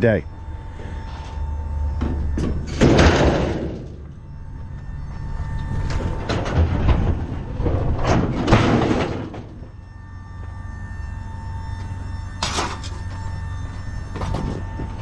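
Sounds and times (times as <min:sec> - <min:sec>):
loud clattering and banging: 0:02.0 - 0:04.0, 0:05.9 - 0:09.6.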